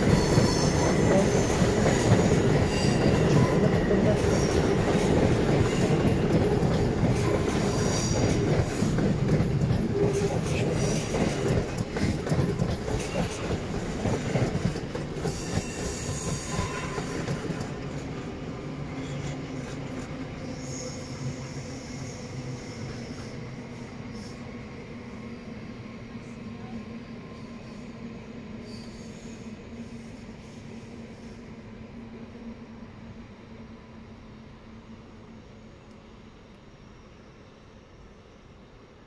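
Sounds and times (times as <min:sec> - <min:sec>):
train wheels rumbling: 0:00.0 - 0:25.2.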